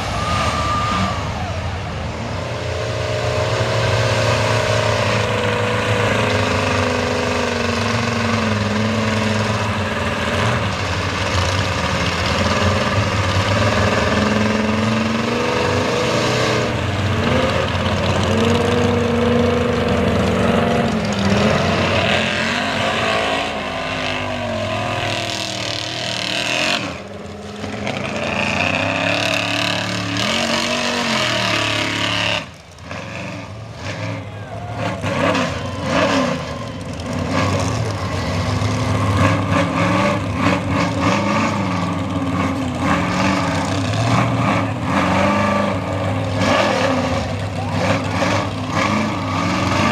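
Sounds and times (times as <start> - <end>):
truck engine revving: 0.0 - 49.9.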